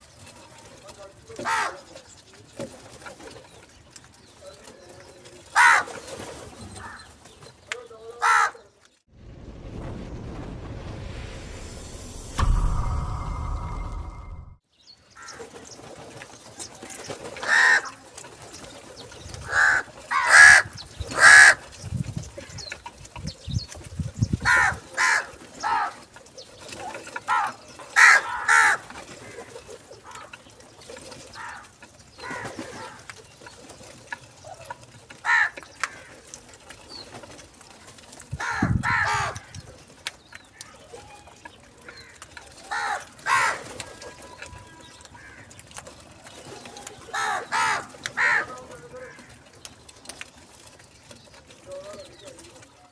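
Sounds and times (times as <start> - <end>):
crows cawing: 1.3 - 1.9, 5.4 - 6.1, 6.7 - 7.2, 8.1 - 8.7, 15.1 - 15.6, 17.4 - 18.1, 19.4 - 21.7, 24.4 - 26.2, 27.2 - 30.5, 31.3 - 33.2, 35.2 - 36.3, 38.3 - 39.6, 41.8 - 45.7, 47.0 - 49.6.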